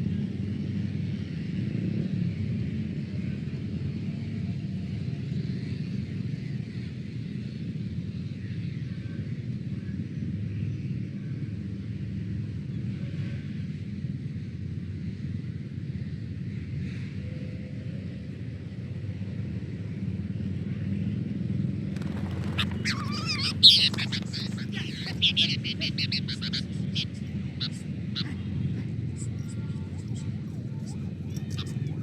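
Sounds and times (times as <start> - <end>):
low outdoor rumble: 21.9 - 32.0
bird chirping: 22.0 - 32.0.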